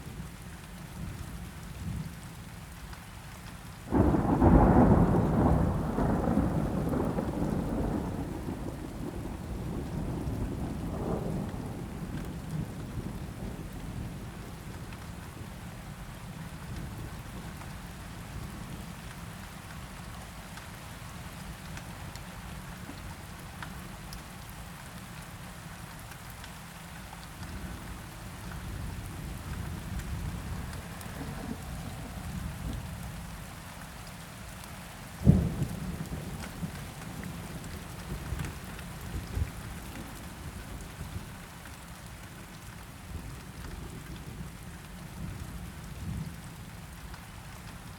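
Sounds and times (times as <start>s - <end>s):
steady rain: 0.0s - 47.9s
thunder rumbling: 3.9s - 14.1s, 28.7s - 33.4s.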